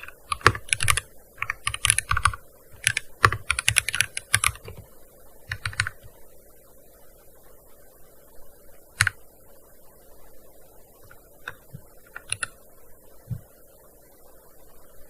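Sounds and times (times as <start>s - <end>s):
keyboard typing: 0.0s - 4.9s, 5.5s - 6.1s, 11.1s - 12.6s.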